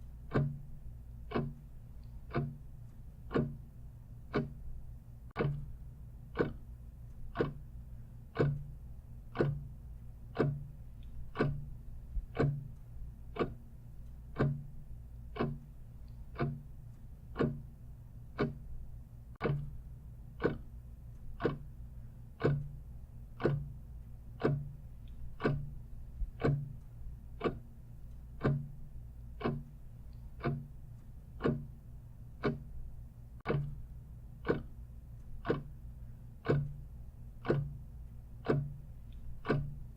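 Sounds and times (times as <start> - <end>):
clock ticking: 0.0 - 39.9
faint low hum: 0.0 - 39.9.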